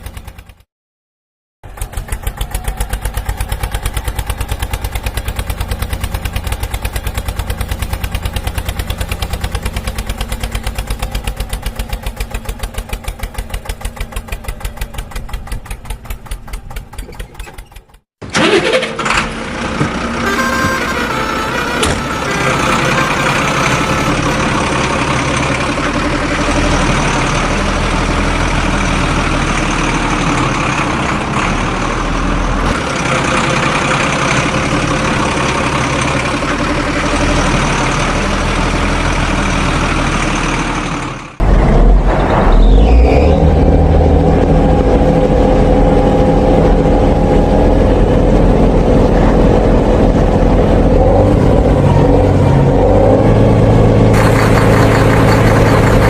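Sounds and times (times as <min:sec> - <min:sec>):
heavy machine engine running: 0:01.7 - 0:56.0
engine whine over low rumble: 0:41.4 - 0:56.0.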